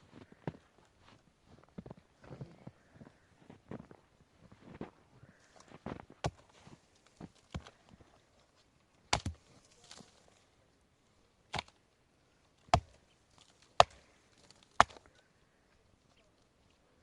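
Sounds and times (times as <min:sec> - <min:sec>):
sharp chopping strikes: 0:09.1 - 0:09.4, 0:13.8 - 0:14.1, 0:14.8 - 0:15.0.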